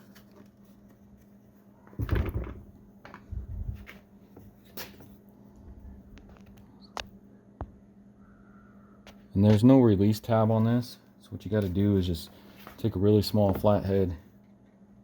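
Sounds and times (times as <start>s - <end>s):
rustling thump: 2.0s - 2.8s.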